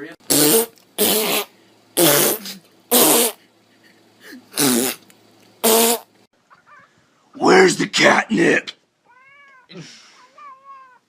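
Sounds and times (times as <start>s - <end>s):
loud farts: 0.3s - 3.4s, 4.6s - 5.0s, 5.6s - 6.1s.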